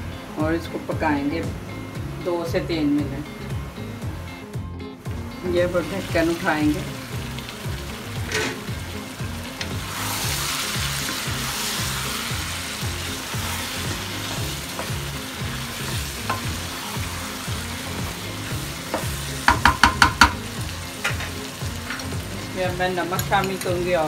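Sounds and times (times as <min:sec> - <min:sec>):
meat sizzling in a wok: 0:05.0 - 0:24.0
wooden spatula scraping: 0:08.2 - 0:08.8.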